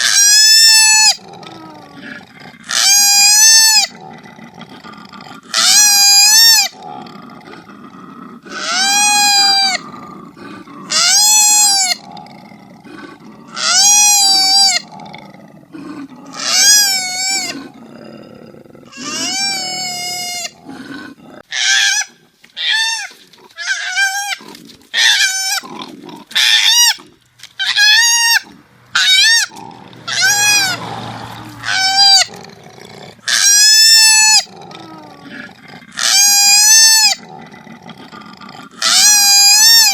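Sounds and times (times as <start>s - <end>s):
koala giving high cries: 8.5s - 9.8s, 10.9s - 12.0s, 13.6s - 14.8s, 18.9s - 20.6s, 27.6s - 29.5s, 30.1s - 30.8s, 31.4s - 32.3s, 38.8s - 39.9s.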